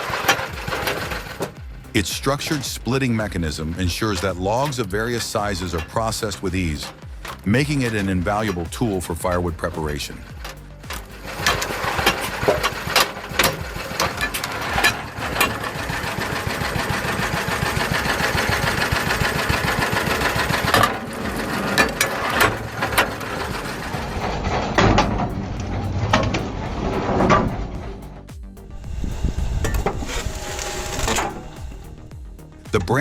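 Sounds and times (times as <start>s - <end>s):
small engine running: 0.0s - 2.7s, 10.2s - 32.7s.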